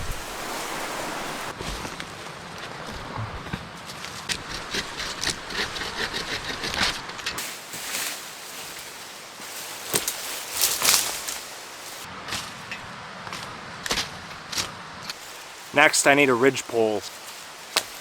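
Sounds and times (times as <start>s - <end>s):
dry brush rustling and crackling: 0.0s - 4.7s, 7.3s - 18.0s
sticks snapping: 9.8s - 11.5s, 17.1s - 18.0s.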